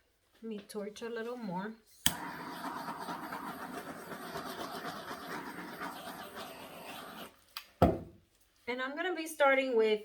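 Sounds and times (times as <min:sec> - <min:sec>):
butane torch hissing: 0:02.1 - 0:07.4.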